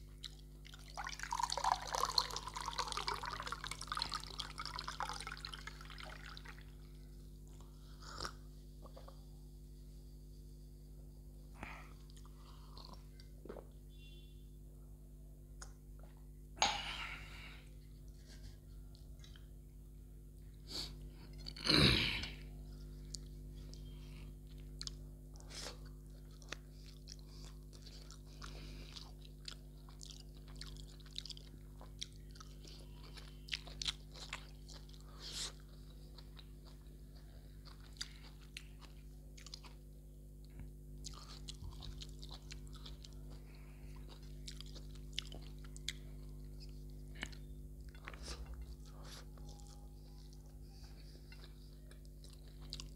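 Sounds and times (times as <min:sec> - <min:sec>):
steady low hum: 0:00.0 - 0:52.9
chewing with wet clicks: 0:00.1 - 0:09.2, 0:12.0 - 0:13.6, 0:18.9 - 0:19.6, 0:22.8 - 0:52.9.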